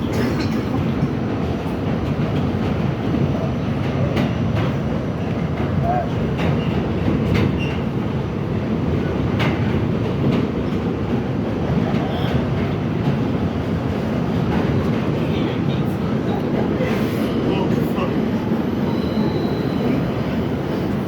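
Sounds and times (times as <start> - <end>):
subway train wheels rumbling: 0.0 - 21.0.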